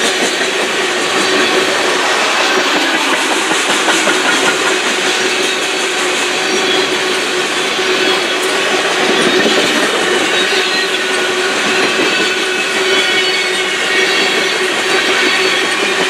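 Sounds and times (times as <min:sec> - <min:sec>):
steel wheels rolling on rail: 0:00.0 - 0:16.0.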